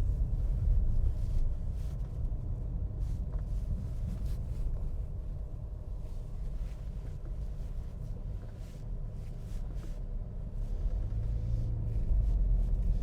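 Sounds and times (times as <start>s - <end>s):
low engine hum: 0.0s - 13.0s
motor vehicle rumble in traffic: 0.0s - 13.0s.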